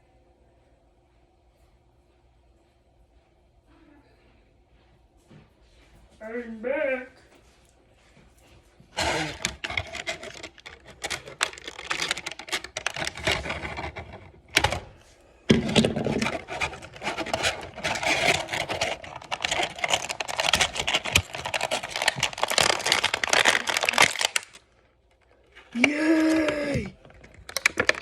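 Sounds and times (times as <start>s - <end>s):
scissors cutting plastic: 9.0s - 14.9s, 15.6s - 24.6s, 25.6s - 28.0s
plastic packaging crackling: 9.0s - 28.0s.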